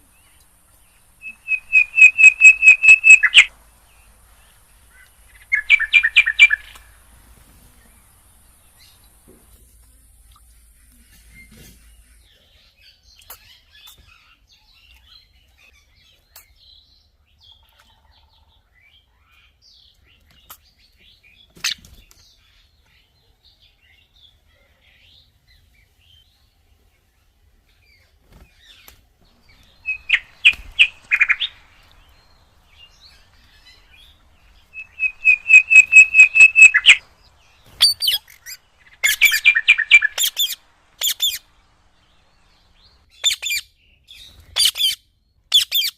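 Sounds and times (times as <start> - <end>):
parrots calling: 1.2 - 3.5, 29.4 - 43.6.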